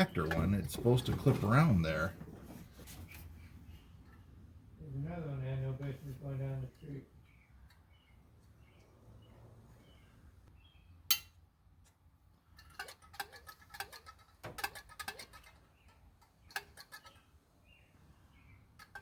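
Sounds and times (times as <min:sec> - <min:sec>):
small parts clicking and tapping: 0:11.1 - 0:17.2, 0:18.8 - 0:19.0.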